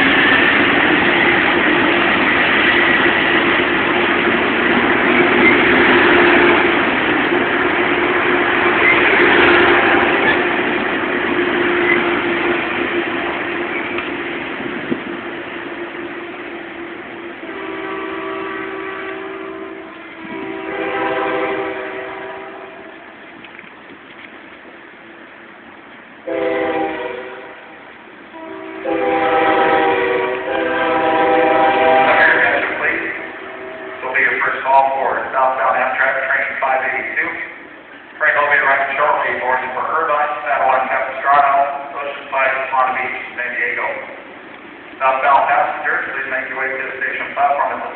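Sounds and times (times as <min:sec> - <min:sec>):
diesel train engine drone: 0:00.0 - 0:47.9
train track noise: 0:00.0 - 0:47.9
locomotive air horn blasts: 0:09.1 - 0:10.4, 0:17.4 - 0:23.0, 0:26.3 - 0:27.7, 0:28.3 - 0:34.3.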